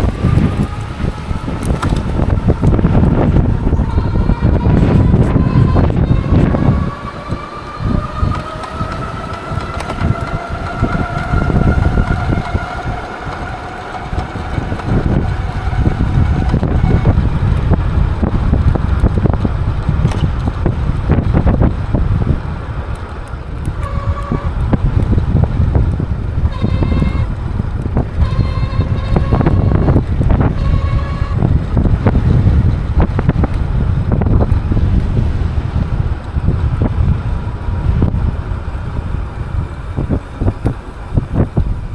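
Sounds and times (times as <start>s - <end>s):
electric motor whine: 0.0s - 18.2s
wind buffeting microphone: 0.0s - 41.9s.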